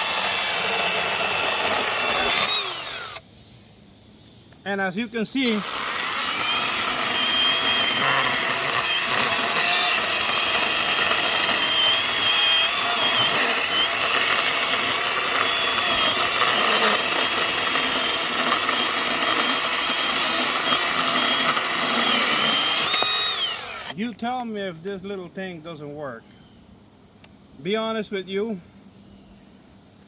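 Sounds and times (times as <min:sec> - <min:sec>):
mini chainsaw cutting log: 0:00.0 - 0:03.2, 0:05.4 - 0:24.0.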